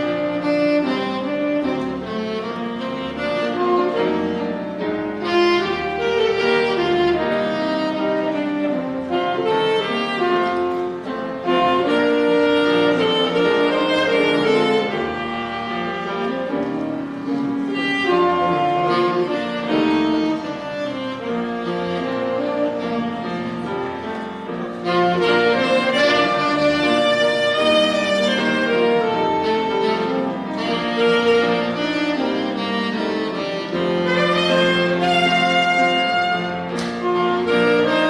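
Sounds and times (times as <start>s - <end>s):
bowed string instrument: 0.0s - 38.0s
wind instrument melody: 0.0s - 38.0s.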